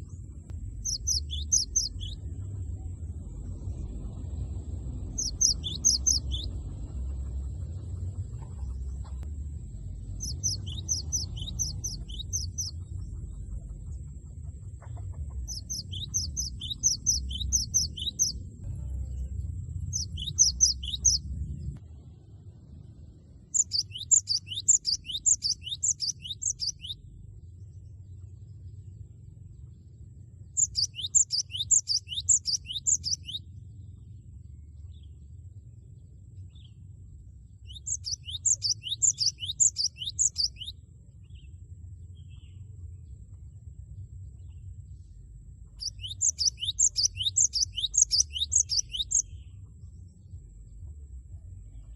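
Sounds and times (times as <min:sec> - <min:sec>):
faint steady high whine: 0:00.0 - 0:14.7, 0:15.4 - 0:51.9
low rumble: 0:00.0 - 0:51.9
bird singing sharp high notes: 0:05.1 - 0:06.5, 0:15.5 - 0:18.4, 0:19.9 - 0:21.2, 0:23.6 - 0:27.0, 0:30.6 - 0:33.4, 0:37.7 - 0:40.7, 0:45.8 - 0:49.4.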